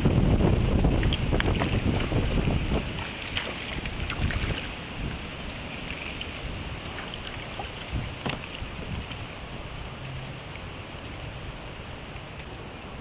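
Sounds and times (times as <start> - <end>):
wind buffeting microphone: 0.0 - 9.9
river water washing around kayak: 0.0 - 13.0.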